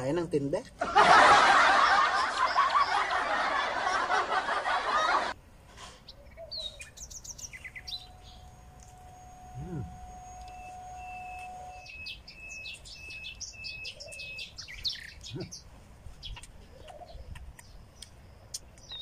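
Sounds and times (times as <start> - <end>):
small birds chirping: 1.9 - 3.3, 6.0 - 19.0.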